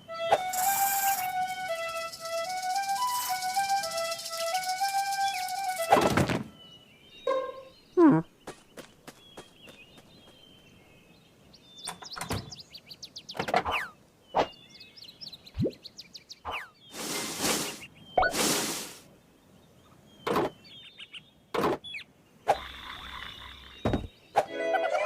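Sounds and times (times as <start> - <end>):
rising squeaks: 0.2 - 6.6.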